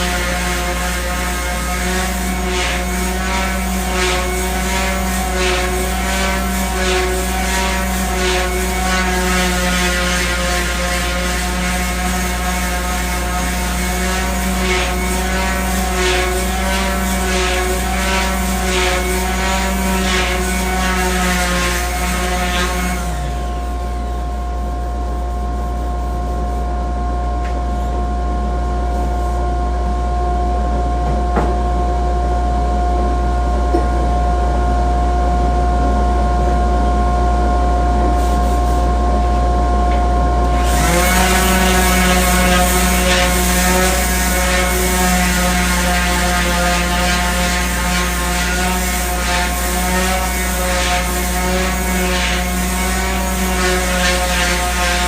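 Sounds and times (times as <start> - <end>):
electric power sander humming: 0.0 - 25.0, 40.4 - 55.0.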